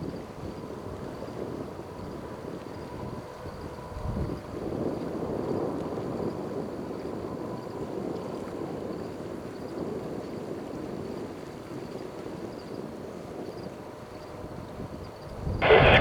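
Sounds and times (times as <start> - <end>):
jet engine rumble: 15.6 - 16.0.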